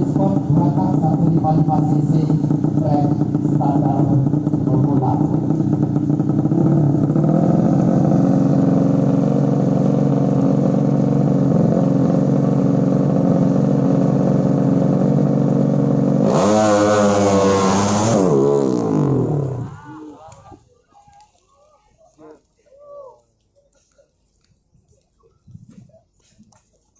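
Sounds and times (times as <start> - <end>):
motorcycle engine revving hard: 0.0 - 19.8
motorcycle engines running: 0.0 - 19.9.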